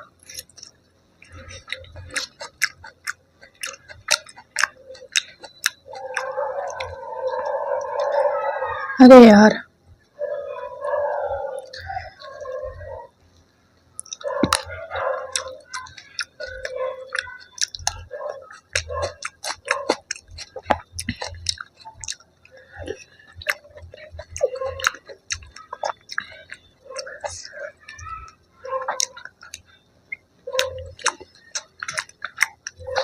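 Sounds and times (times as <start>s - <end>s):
chewing food: 0.0s - 8.9s, 10.3s - 33.0s
wet mouth clicks and smacks: 0.3s - 7.0s, 14.0s - 14.7s, 15.3s - 28.0s, 28.9s - 33.0s.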